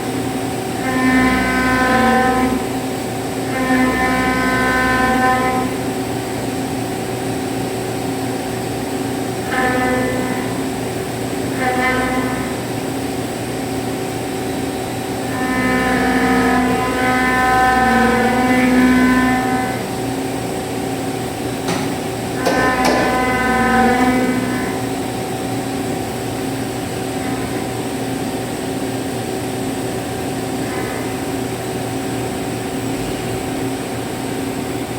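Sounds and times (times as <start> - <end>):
milling machine hum: 0.0 - 34.9
cutting whine: 9.4 - 10.9, 15.2 - 20.0, 21.6 - 25.3.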